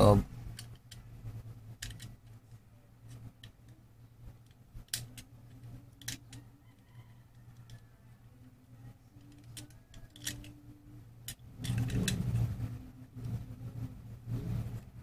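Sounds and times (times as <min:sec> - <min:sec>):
low steady hum: 0:00.0 - 0:15.0
small clicks of metal parts: 0:00.5 - 0:01.1, 0:01.7 - 0:03.8, 0:04.4 - 0:07.9, 0:09.1 - 0:12.4.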